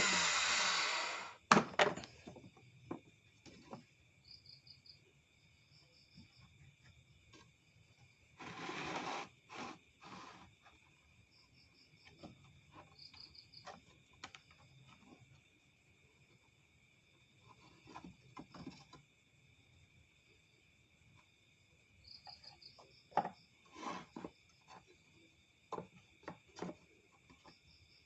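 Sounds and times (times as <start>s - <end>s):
insects chirring: 0.0s - 28.0s
faint handling knocks and clicks: 1.5s - 4.0s, 12.0s - 15.6s, 24.0s - 27.7s.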